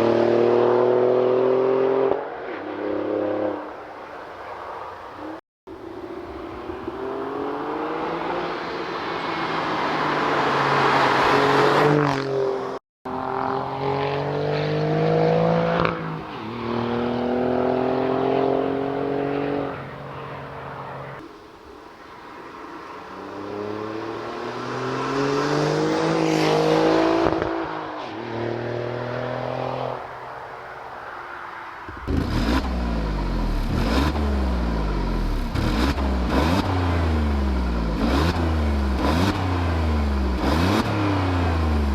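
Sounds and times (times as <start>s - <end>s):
car engine accelerating hard: 32.0s - 41.9s.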